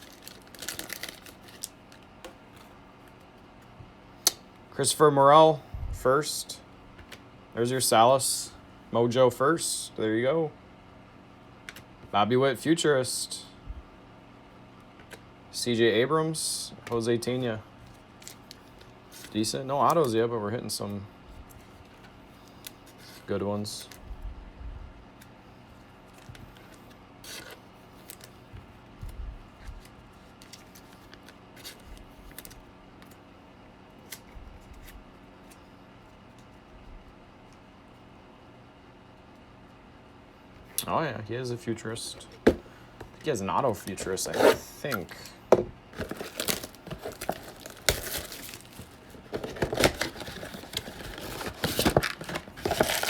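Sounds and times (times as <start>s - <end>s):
plastic wrappers crinkling and tearing: 0.0s - 2.7s, 45.9s - 53.0s.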